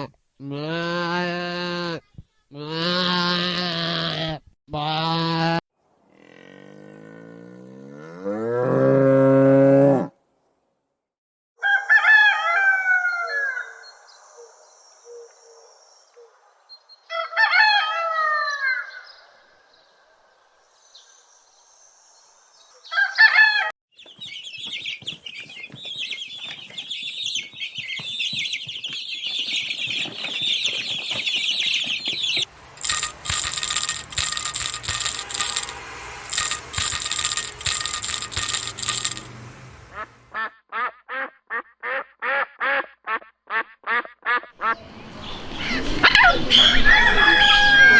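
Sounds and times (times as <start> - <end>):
rooster crowing: 11.6 - 13.7, 22.9 - 23.7, 46.1 - 47.9
drawn-out animal call: 24.0 - 39.3
high chirping: 24.0 - 39.3
rattly clicking: 32.8 - 39.3.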